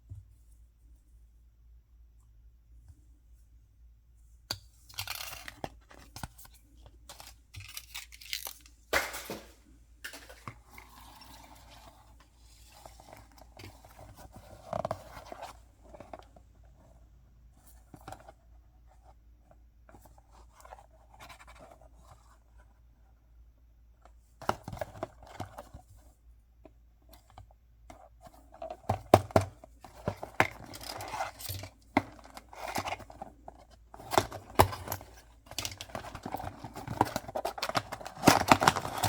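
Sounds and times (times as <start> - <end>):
packaging crinkling and tearing: 7.6 - 9.5, 35.6 - 39.0
sharp packaging snaps: 7.6 - 10.3.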